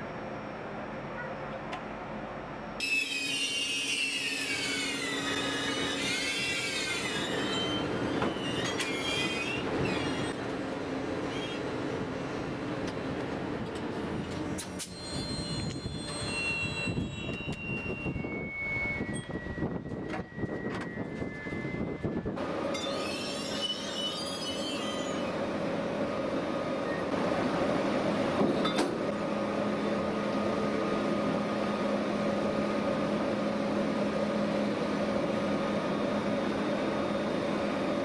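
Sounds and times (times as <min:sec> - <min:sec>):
locomotive hum and rumble: 0:00.0 - 0:38.0
high wavering wheel squeal: 0:02.8 - 0:10.4, 0:14.5 - 0:25.4.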